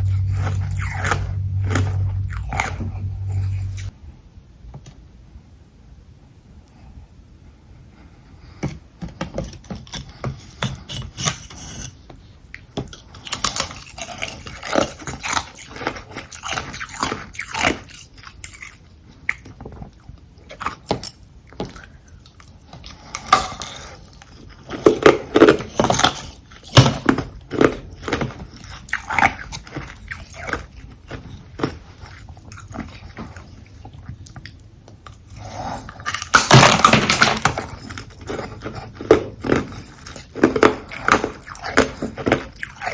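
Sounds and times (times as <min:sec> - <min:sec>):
chewing ice crunches: 0:00.0 - 0:03.9, 0:12.6 - 0:42.9.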